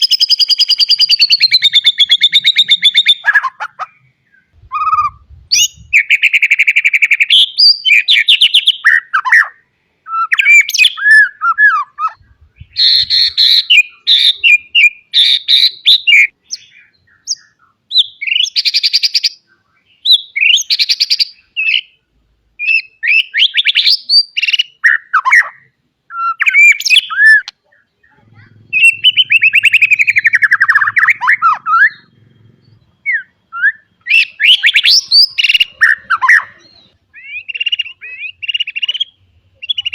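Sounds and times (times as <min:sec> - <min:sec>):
songbird singing varied song: 0:00.0 - 0:39.9.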